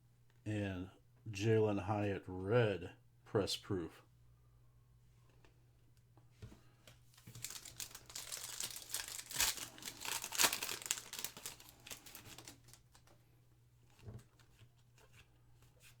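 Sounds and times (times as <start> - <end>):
foil wrapper tearing and crinkling: 7.1 - 13.1.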